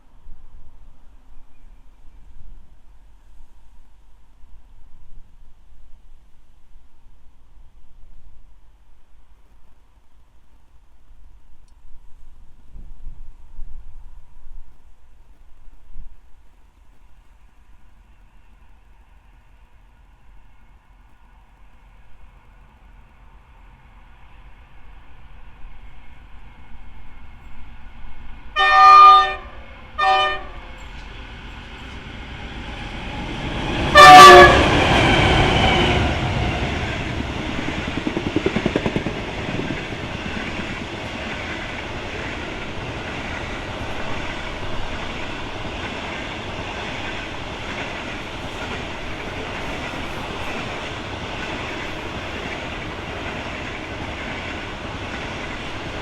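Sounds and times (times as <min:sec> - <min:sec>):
locomotive horn blasts: 0:28.6 - 0:30.7, 0:33.9 - 0:35.0
train cars rumbling and clattering: 0:29.3 - 0:56.0.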